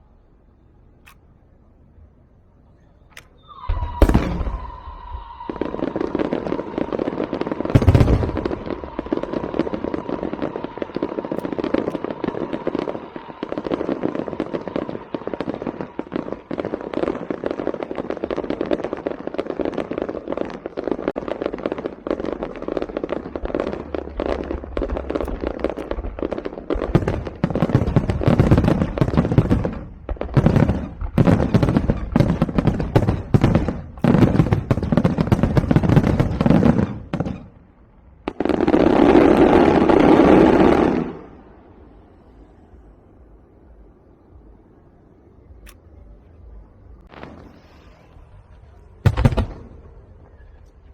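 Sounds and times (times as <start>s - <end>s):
firecrackers crackling: 3.1s - 42.9s, 47.0s - 50.9s
heavy firecracker bang: 3.5s - 16.7s, 49.0s - 50.2s.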